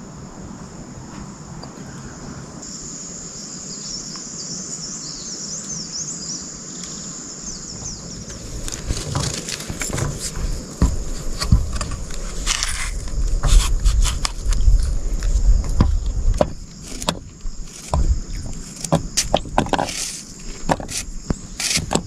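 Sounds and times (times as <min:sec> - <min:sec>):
insect chorus: 0:00.0 - 0:22.0
knocks and clatter: 0:07.8 - 0:12.5, 0:15.6 - 0:22.0.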